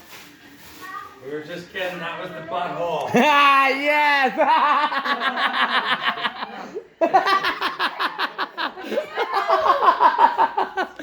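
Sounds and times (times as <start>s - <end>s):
people laughing: 4.2s - 11.0s.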